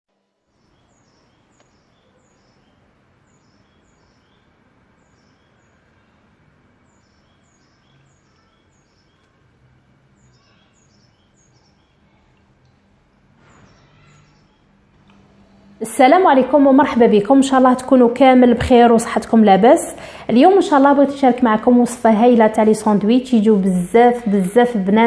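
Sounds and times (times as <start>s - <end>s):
small bird chirping: 0.4s - 14.8s.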